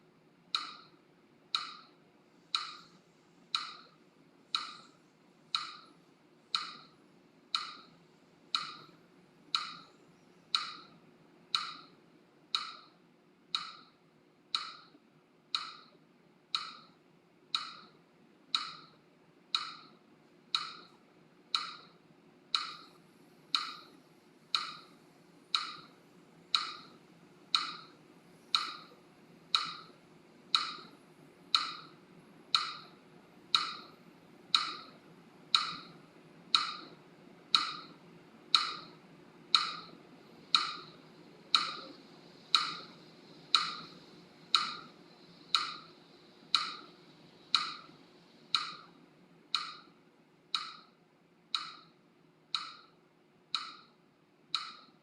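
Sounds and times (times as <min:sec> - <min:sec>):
metronome clicking: 0:00.5 - 0:02.9, 0:03.5 - 0:04.9, 0:05.5 - 0:05.9, 0:06.5 - 0:06.9, 0:07.5 - 0:07.9, 0:08.5 - 0:11.9, 0:12.5 - 0:13.9, 0:14.5 - 0:24.9, 0:25.5 - 0:25.9, 0:26.5 - 0:27.9, 0:28.5 - 0:29.9, 0:30.5 - 0:30.9, 0:31.5 - 0:44.9, 0:45.5 - 0:45.9, 0:46.5 - 0:46.9, 0:47.5 - 0:49.0, 0:49.6 - 0:49.9, 0:50.6 - 0:50.9, 0:51.6 - 0:51.9, 0:52.6 - 0:53.0, 0:53.6 - 0:53.9, 0:54.6 - 0:55.0.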